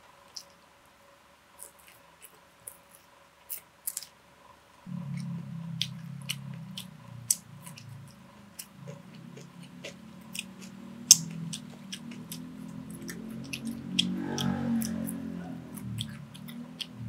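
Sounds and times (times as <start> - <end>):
person chewing: 1.6 - 4.1, 5.1 - 17.0
sharp mouth smacks and clicks: 10.3 - 15.0.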